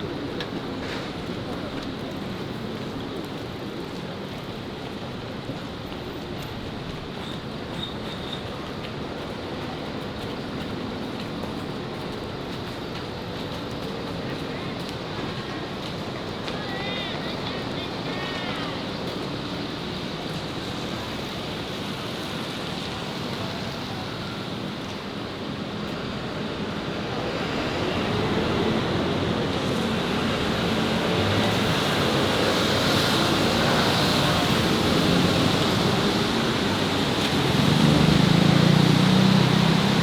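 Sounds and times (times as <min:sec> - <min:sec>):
city street traffic: 0:00.0 - 0:40.0
vehicle engine passing close: 0:27.9 - 0:40.0.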